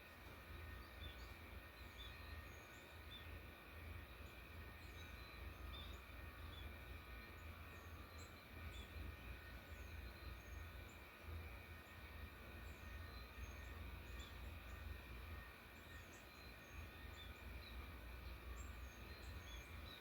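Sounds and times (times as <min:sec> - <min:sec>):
small birds chirping: 0:11.8 - 0:20.0.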